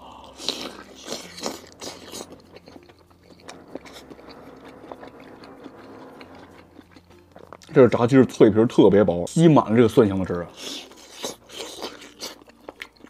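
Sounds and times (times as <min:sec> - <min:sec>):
crunching fried chicken: 0:00.1 - 0:07.8, 0:10.6 - 0:13.0
chewing with small clicks: 0:00.2 - 0:07.7, 0:10.8 - 0:13.0.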